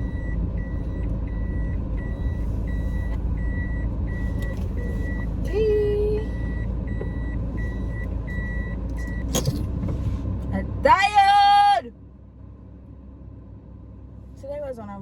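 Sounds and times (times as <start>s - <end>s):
car warning chime beeping: 0.0s - 9.3s
low car hum: 0.0s - 15.0s.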